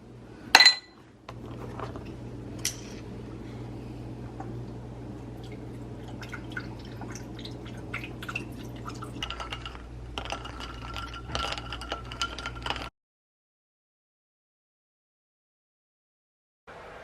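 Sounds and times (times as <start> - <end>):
steady low hum: 0.0 - 12.9
liquid dripping and pouring: 4.4 - 12.8.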